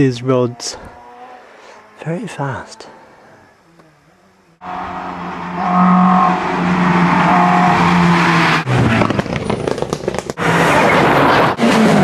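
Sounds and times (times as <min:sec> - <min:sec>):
car driving fast: 0:03.5 - 0:12.0.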